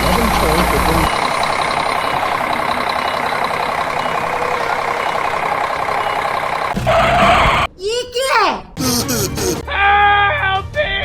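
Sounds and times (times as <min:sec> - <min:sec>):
heavy vehicle engine running: 0:00.0 - 0:07.7.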